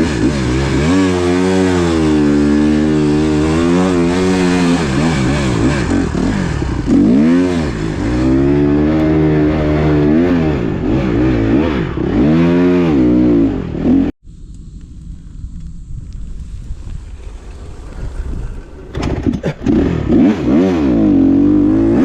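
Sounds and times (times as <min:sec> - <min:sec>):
motocross bike engine revving: 0:00.0 - 0:14.1, 0:18.7 - 0:22.0
wind noise: 0:14.2 - 0:21.0.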